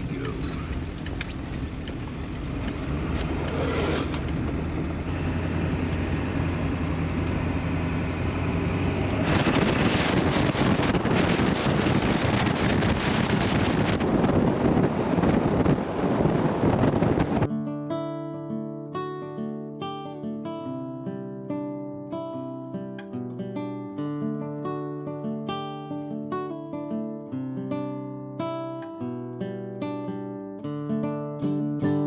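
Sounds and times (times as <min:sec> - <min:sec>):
road and wind rushing: 0:00.0 - 0:17.5
truck engine humming: 0:00.0 - 0:17.5.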